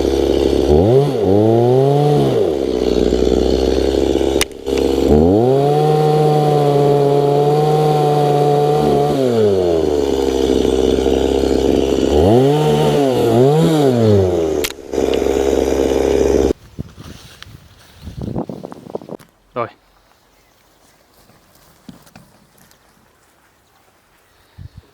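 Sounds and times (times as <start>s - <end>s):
engine clatter: 0.0s - 7.2s, 8.8s - 16.6s
engine revving: 0.0s - 16.6s.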